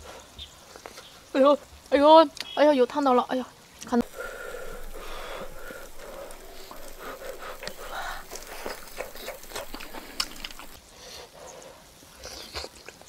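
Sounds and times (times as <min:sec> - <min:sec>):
person chewing with wet clicks: 0:04.0 - 0:10.8, 0:12.2 - 0:13.0.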